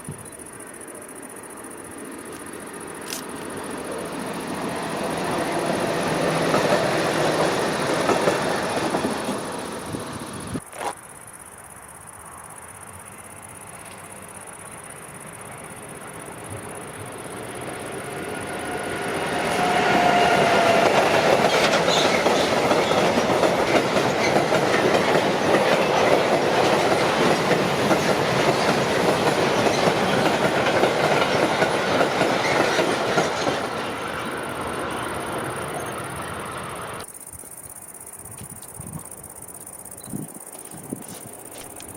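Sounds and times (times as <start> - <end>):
train wheels clattering on track: 2.3 - 10.6, 15.8 - 37.1
train wheel squeal: 14.6 - 37.1.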